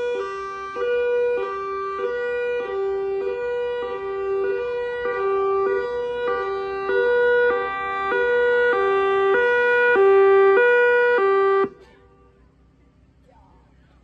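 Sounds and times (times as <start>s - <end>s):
warning siren alternating pitch: 0.0s - 11.9s.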